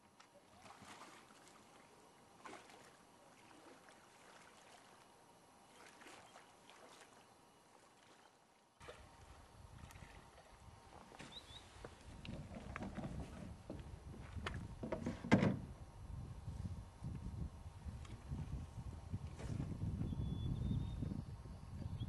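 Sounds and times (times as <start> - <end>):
light paddle strokes: 0.0 - 14.6
paddle splashes and drips: 0.0 - 14.6.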